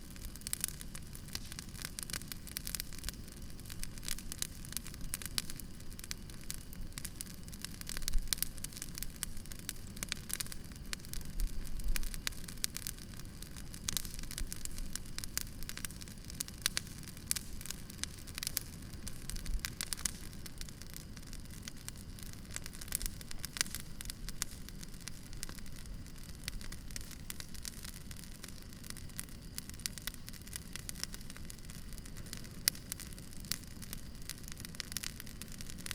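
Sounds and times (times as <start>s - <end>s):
campfire crackling and popping: 0.0s - 35.9s.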